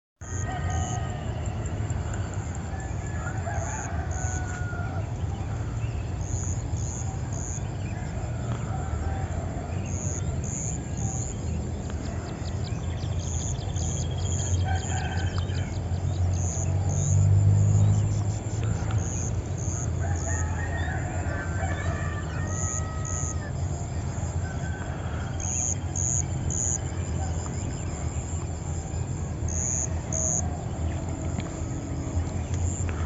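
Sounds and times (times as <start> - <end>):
rooster crowing: 0.2 - 11.2, 14.2 - 16.6, 18.8 - 27.0
steady low rumble: 0.3 - 33.0.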